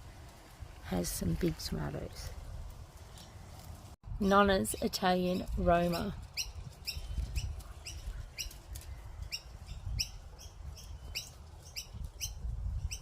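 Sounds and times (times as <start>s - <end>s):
low rumble of wind: 0.0s - 13.0s
bird chirping: 4.6s - 13.0s.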